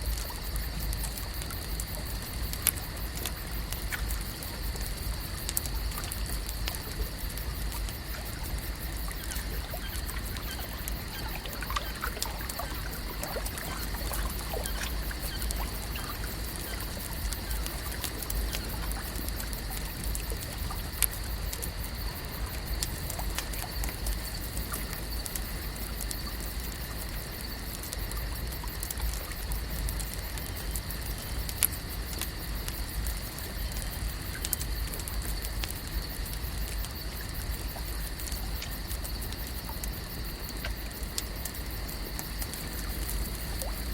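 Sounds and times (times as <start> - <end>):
small clicks and drips: 0.0 - 43.9
water lapping and trickling: 0.0 - 43.9.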